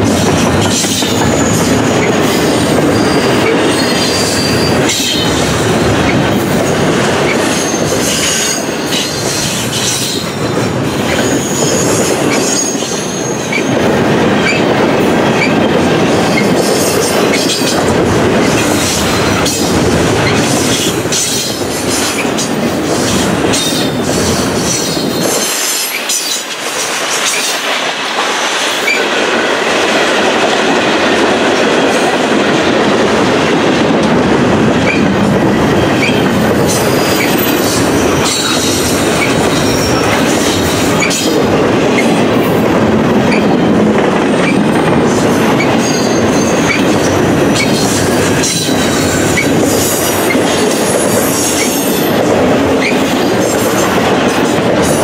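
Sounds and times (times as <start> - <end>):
freight train rumbling past: 0.0 - 55.0
high wheel squeal: 2.9 - 5.3, 11.1 - 13.7.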